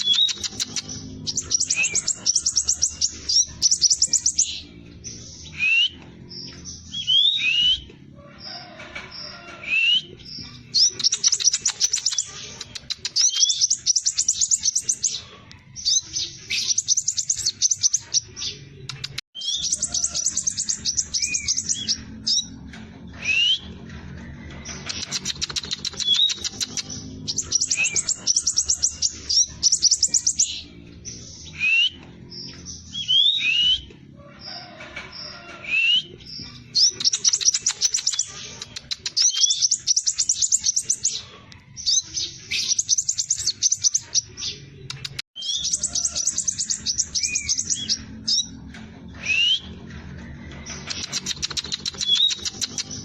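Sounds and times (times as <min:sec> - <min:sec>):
bird whistling rising notes: 0:00.0 - 0:04.6, 0:05.5 - 0:06.0, 0:06.9 - 0:07.9, 0:23.2 - 0:23.8, 0:31.4 - 0:32.1, 0:49.2 - 0:49.8.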